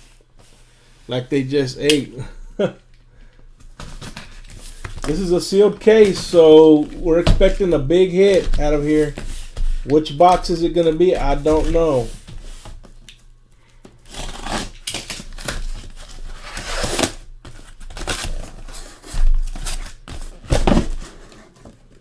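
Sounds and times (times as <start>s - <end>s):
boxes thumping: 3.7s - 12.3s
cardboard scraping and tearing: 3.8s - 12.7s, 14.0s - 21.8s.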